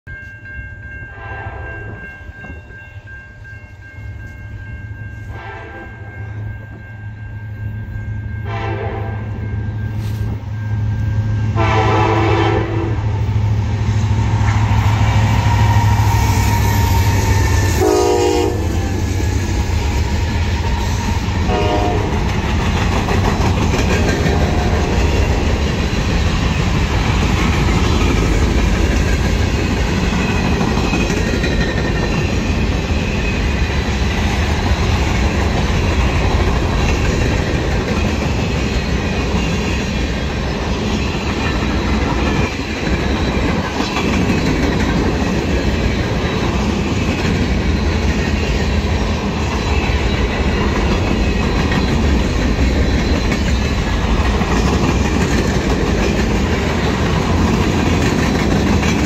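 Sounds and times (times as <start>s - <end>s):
train horn blasts: 1.1s - 2.0s, 5.3s - 6.3s, 8.4s - 9.4s, 11.5s - 13.3s, 15.4s - 19.2s, 21.4s - 22.4s, 24.3s - 25.0s
wheels rolling on rails: 22.1s - 59.0s.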